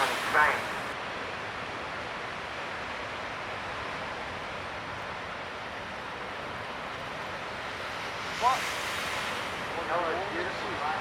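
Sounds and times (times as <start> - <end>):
surf: 0.0 - 1.0, 7.4 - 11.0
wind: 0.0 - 11.0.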